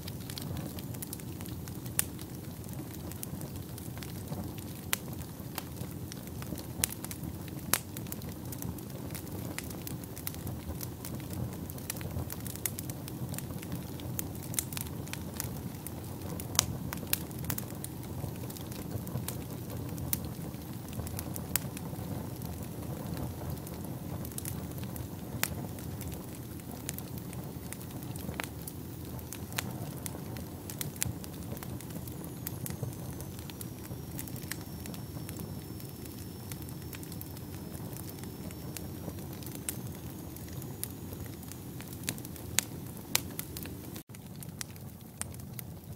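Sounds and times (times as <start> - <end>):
wood fire crackling: 0.0 - 45.9
faint high whistle: 32.0 - 41.5.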